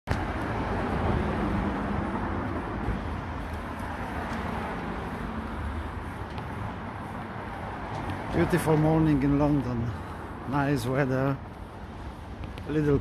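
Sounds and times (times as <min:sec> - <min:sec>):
traffic rumble: 0:00.1 - 0:13.0.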